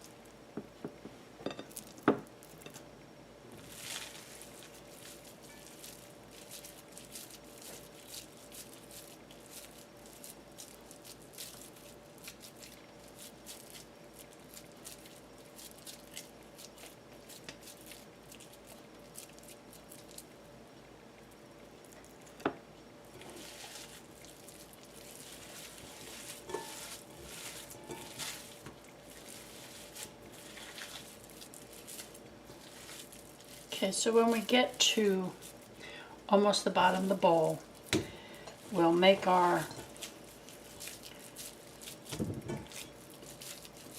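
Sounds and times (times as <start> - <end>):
hands patting wet meat: 37.8 - 43.9.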